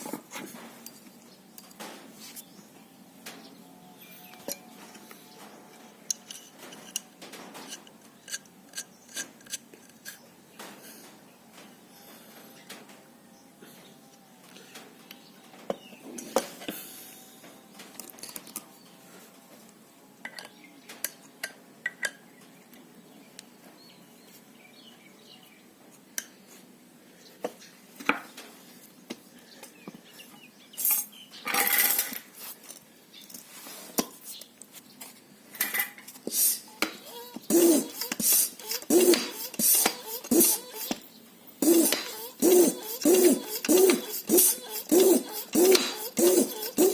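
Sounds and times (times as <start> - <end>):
hand pump strokes with air rush: 36.2 - 46.9.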